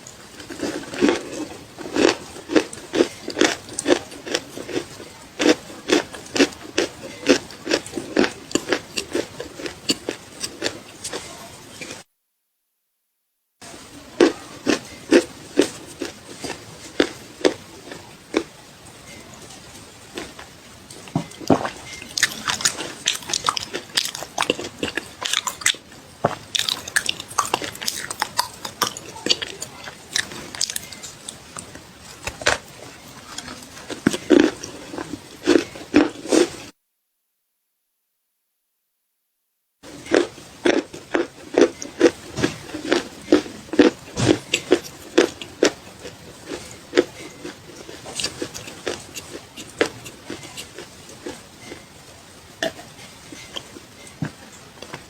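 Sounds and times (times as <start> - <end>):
person biting crunchy clay: 21.5 - 29.4.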